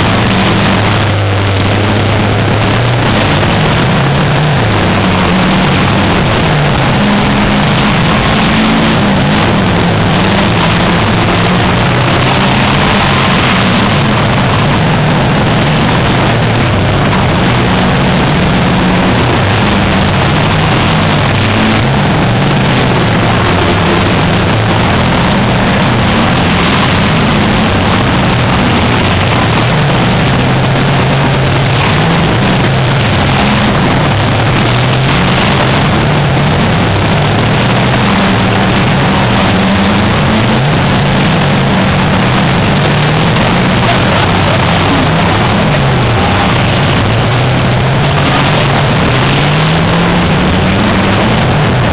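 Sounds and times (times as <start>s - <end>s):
race car engines revving: 0.0s - 51.9s.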